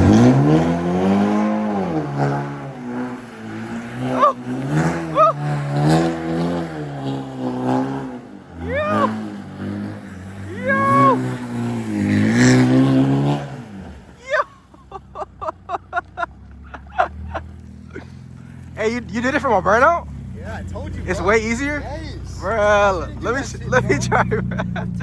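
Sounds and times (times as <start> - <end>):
car engine revving hard: 0.0 - 14.2, 16.4 - 25.0.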